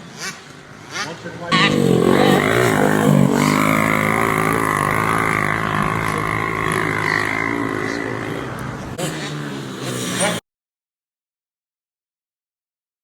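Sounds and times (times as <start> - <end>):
motocross bike engine running: 0.0 - 10.4.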